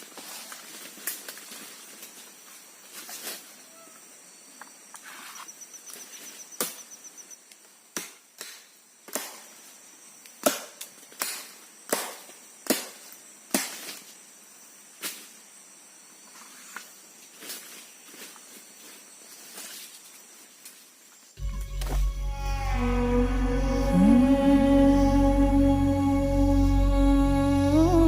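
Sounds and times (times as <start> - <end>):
firewood chopping: 10.4 - 13.8
faint high-pitched drone: 21.4 - 28.0.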